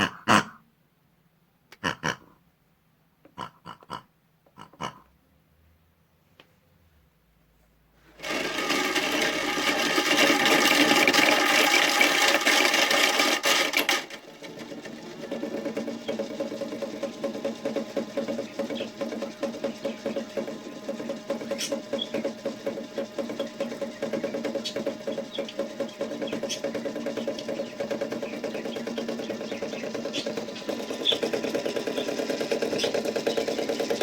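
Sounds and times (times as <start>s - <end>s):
small electric motor whirring: 8.2s - 34.0s.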